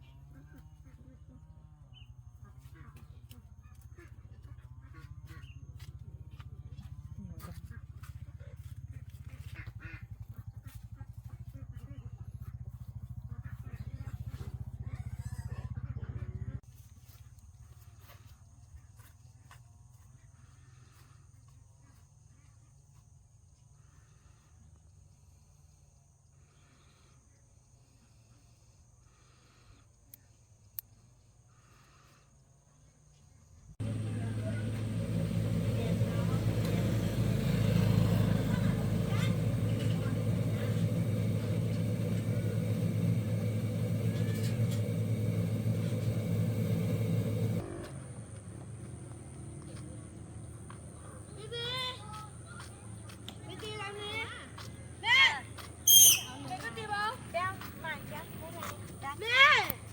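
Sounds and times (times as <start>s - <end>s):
engine running low rumble: 0.0s - 16.6s, 33.7s - 59.9s
faint low rumble: 33.8s - 53.1s
faint high chirps: 55.9s - 56.5s.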